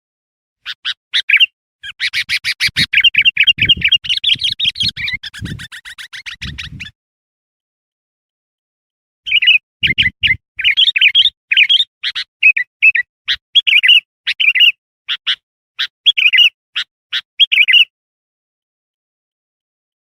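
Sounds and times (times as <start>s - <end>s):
bird chattering chirps: 0.6s - 6.9s, 9.3s - 17.9s.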